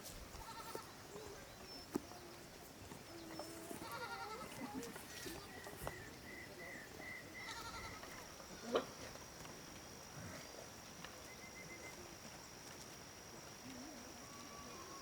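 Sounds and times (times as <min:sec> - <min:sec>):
goats bleating: 0:03.8 - 0:04.8, 0:07.5 - 0:08.0.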